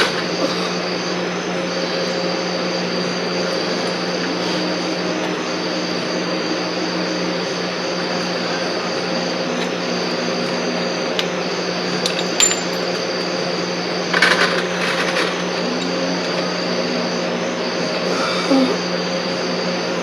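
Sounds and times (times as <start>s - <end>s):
steady mechanical hum: 0.0s - 20.0s
metal tools clinking: 12.0s - 13.3s, 14.1s - 16.6s.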